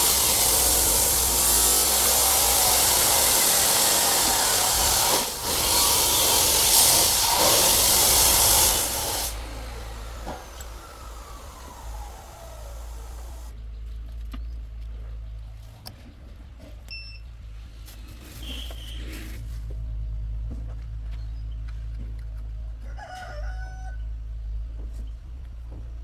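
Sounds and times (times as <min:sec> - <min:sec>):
power tool running with rasping noise: 0:00.0 - 0:13.5
whine of tool spinning down: 0:00.0 - 0:13.5.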